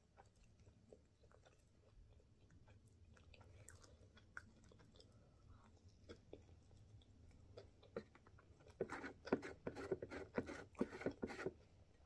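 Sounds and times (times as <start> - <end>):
chewing with wet mouth clicks: 0.0 - 8.8.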